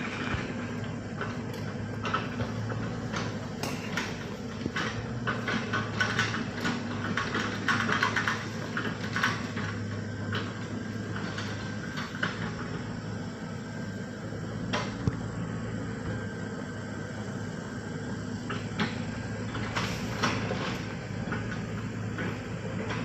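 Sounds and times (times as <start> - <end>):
heavy machine engine running: 0.0 - 23.0.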